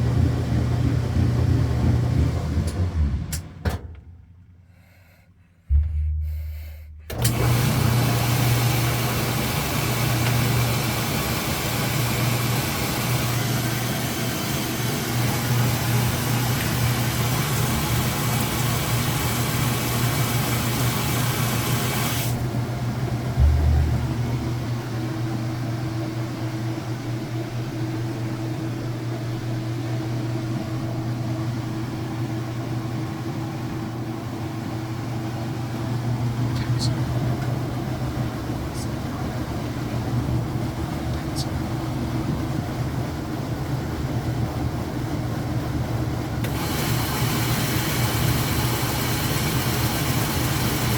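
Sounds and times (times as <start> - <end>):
washing machine motor hum: 0.0 - 4.6, 5.7 - 50.9
washing machine thump: 0.2 - 4.3, 5.7 - 8.8, 23.2 - 24.9
high whine: 5.6 - 7.5, 23.2 - 25.4.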